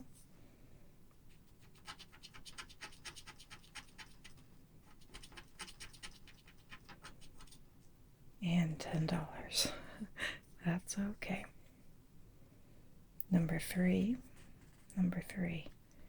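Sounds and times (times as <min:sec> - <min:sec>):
scratching lottery ticket coating: 0:01.5 - 0:07.6.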